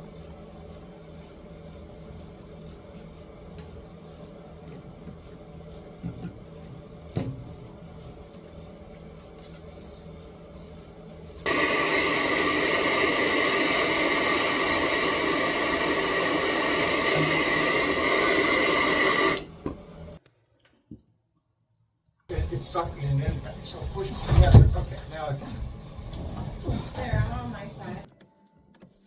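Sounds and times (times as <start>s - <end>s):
loud steady hiss: 11.5s - 19.5s.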